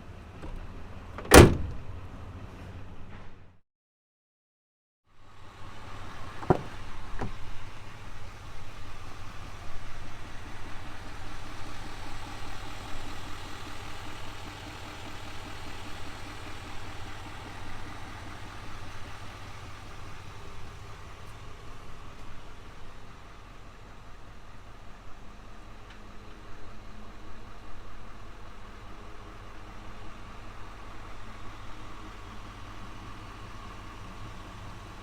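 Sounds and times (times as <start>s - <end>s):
diesel engine idling: 0.0s - 3.0s, 5.3s - 35.0s.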